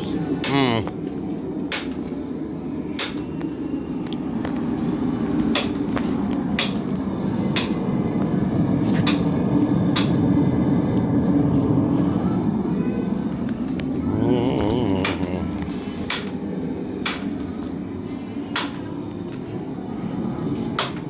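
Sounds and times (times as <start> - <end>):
steady low rumble: 4.2 - 20.5.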